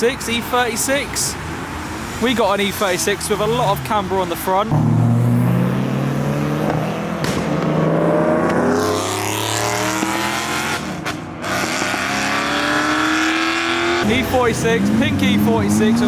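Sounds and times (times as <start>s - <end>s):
car engine accelerating hard: 4.7s - 16.0s.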